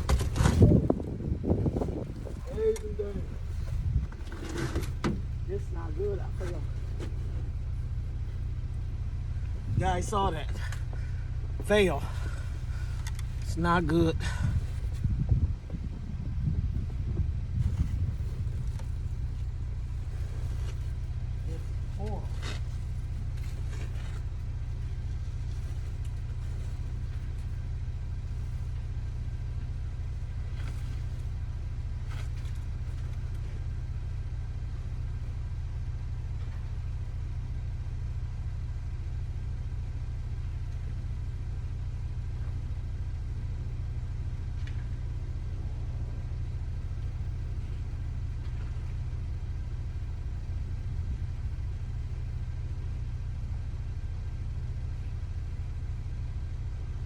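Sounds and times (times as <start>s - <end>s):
vehicle engine idling: 0.0s - 57.0s.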